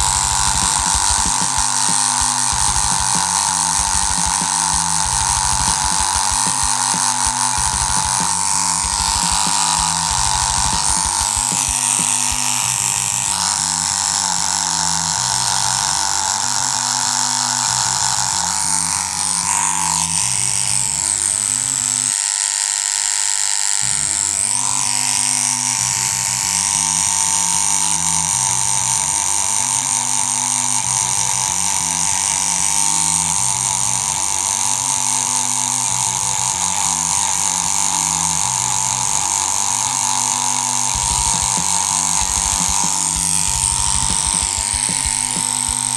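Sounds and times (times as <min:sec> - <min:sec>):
background music with bassline: 0:00.0 - 0:16.9, 0:40.2 - 0:45.9
tattoo machine buzzing: 0:00.0 - 0:45.9.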